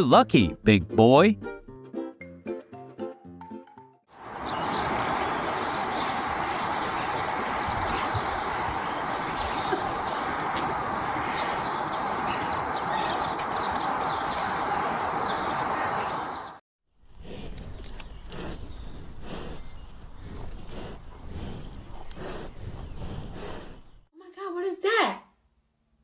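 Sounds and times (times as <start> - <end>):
small birds chirping: 4.1 - 24.1.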